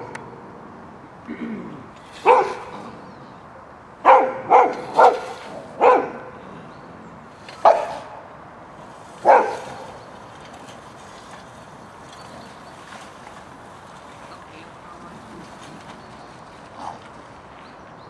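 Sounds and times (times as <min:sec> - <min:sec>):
dog barking: 0:02.2 - 0:02.6, 0:04.0 - 0:06.3, 0:07.6 - 0:08.1, 0:09.2 - 0:09.6.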